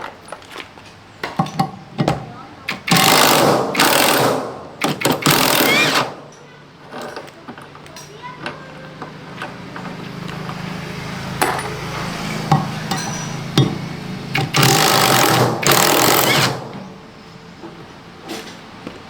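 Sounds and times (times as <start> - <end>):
mechanical hum: 0.0 - 19.0
sharp metal knocks: 12.4 - 17.0.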